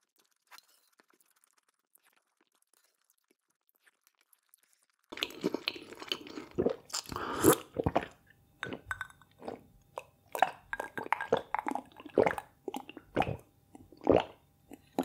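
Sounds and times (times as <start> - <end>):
chewing with crunchy bites: 0.0 - 15.0
wet mouth clicks: 5.2 - 15.0.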